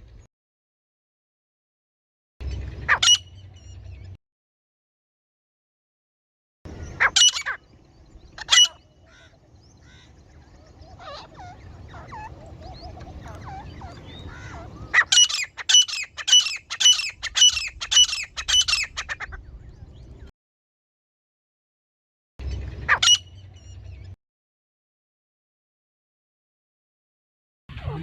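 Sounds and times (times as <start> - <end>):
francolin calling: 6.8 - 19.1.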